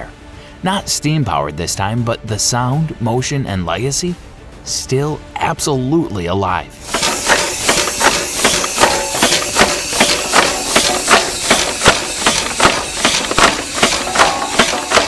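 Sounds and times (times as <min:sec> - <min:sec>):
steam engine knocking: 0:06.8 - 0:15.0.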